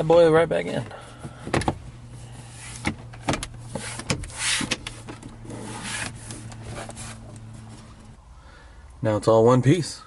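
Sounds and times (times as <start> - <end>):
plastic panel scraping trim: 2.7 - 7.5.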